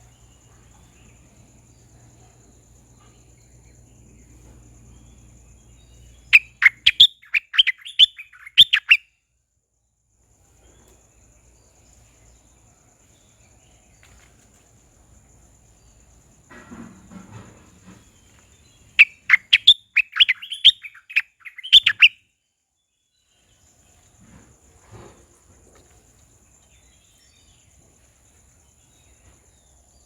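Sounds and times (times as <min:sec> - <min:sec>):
parrot shrill calls: 0:06.3 - 0:09.0, 0:19.0 - 0:22.2.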